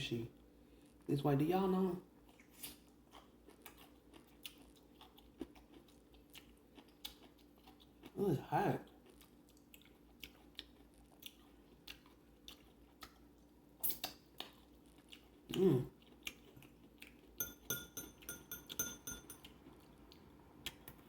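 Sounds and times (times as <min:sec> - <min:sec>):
soft chewing: 0:00.3 - 0:01.1, 0:02.0 - 0:17.5, 0:19.3 - 0:21.0
metal utensil clinking on dish: 0:17.4 - 0:19.5.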